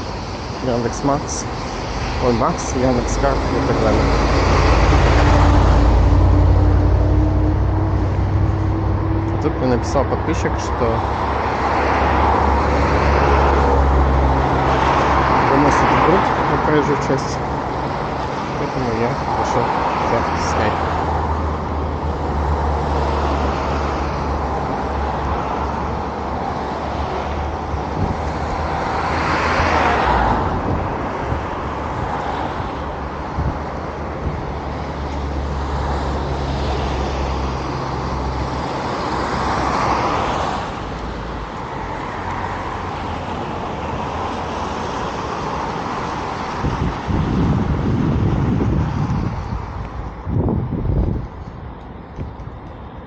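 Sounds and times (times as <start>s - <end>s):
cars passing on a street: 0.0s - 53.0s
engine humming nearby: 0.0s - 53.0s
low rumble: 2.7s - 11.7s.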